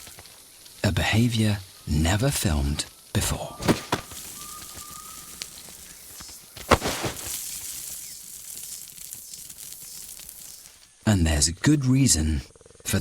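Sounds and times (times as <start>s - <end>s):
high insect hiss: 0.0s - 13.0s
faint rustles: 2.9s - 11.0s.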